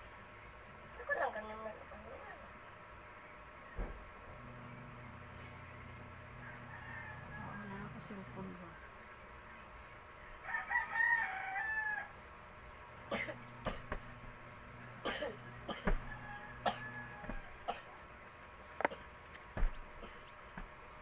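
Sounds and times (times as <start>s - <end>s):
rooster crowing: 5.2s - 8.5s, 10.4s - 12.3s, 13.9s - 17.8s
sharp irregular knocks: 15.2s - 17.8s, 19.6s - 20.8s.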